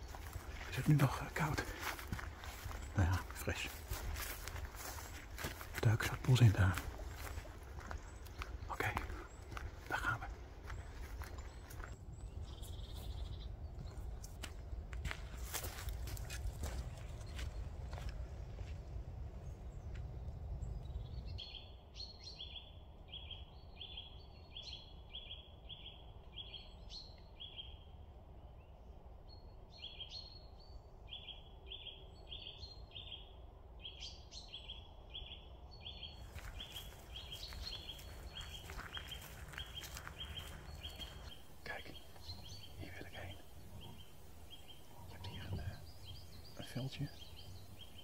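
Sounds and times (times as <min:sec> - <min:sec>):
low outdoor rumble: 0:00.0 - 0:21.5, 0:36.2 - 0:48.0.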